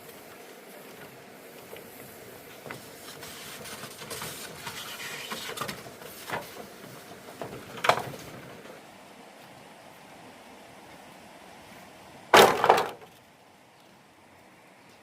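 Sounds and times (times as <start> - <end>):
handling noise rustling and scraping: 2.6 - 8.4
sharp knocks: 12.4 - 13.1.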